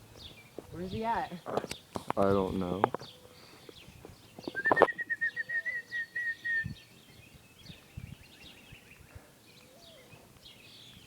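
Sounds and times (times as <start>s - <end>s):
faint bird chirps: 3.0s - 11.0s.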